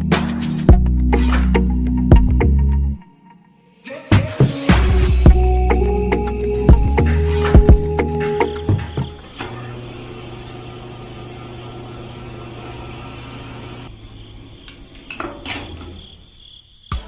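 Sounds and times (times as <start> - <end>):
small motor humming: 6.0 - 13.9.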